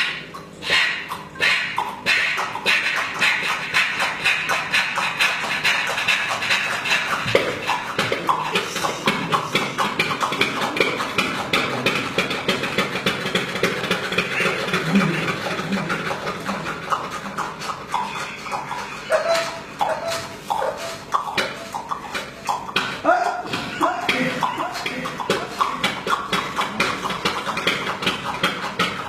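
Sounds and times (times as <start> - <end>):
diesel engine knocking: 8.0 - 17.1.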